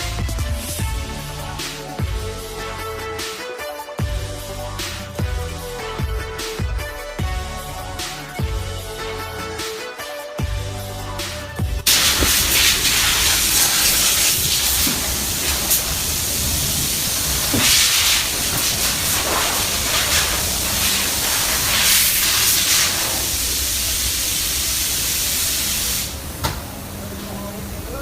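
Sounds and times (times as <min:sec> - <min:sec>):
high-pressure water jet hissing: 0:11.9 - 0:28.0.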